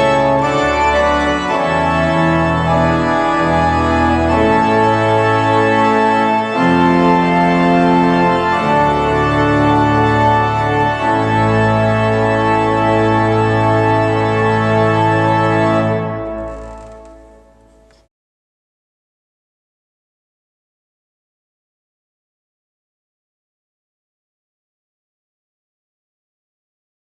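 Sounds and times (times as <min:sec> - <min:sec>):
organ playing sustained chords: 0:00.0 - 0:17.9.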